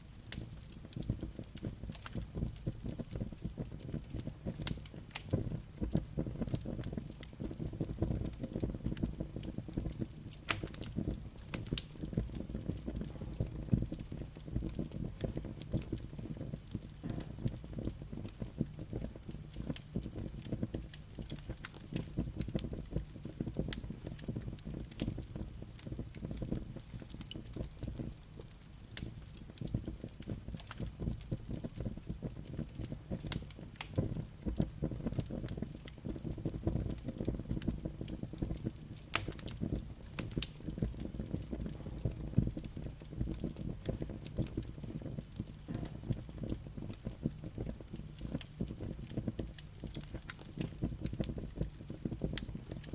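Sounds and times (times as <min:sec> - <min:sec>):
fire rumbling: 0:00.0 - 0:52.9
logs crackling and popping: 0:00.0 - 0:52.9.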